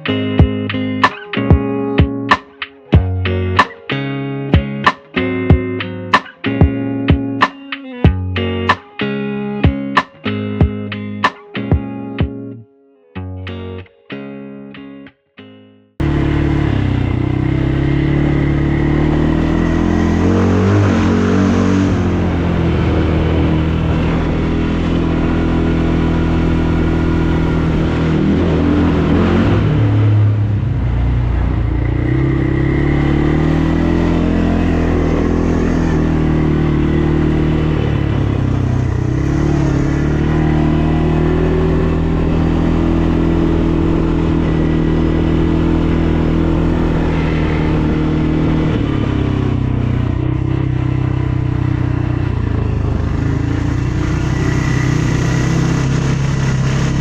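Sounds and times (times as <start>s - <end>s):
atv engine revving: 16.0s - 57.0s.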